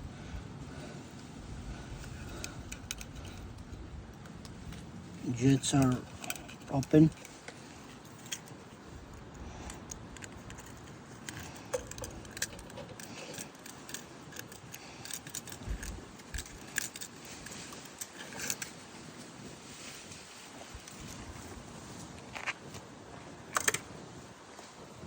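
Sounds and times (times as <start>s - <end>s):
metallic clicking and jingling: 2.0s - 18.8s.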